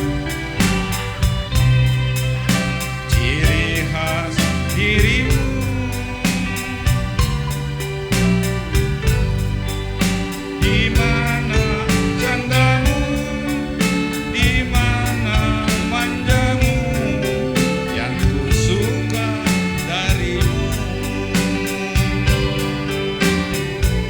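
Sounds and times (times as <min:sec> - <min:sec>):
drum beat: 0:00.0 - 0:24.0
pitched percussion: 0:00.0 - 0:24.0.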